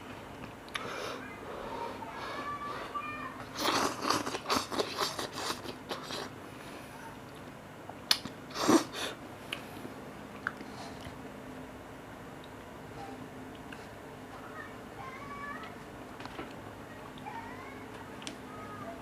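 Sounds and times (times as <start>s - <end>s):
person chewing noodles: 3.6s - 6.3s.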